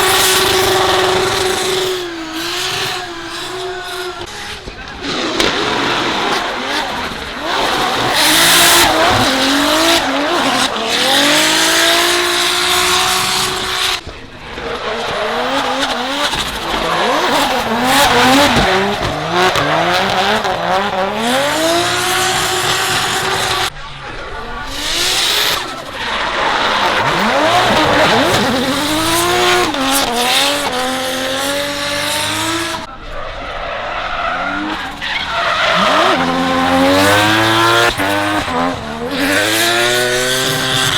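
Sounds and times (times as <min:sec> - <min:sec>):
car engines revving hard: 0:00.0 - 0:40.9
tyres squealing and skidding: 0:00.0 - 0:40.9.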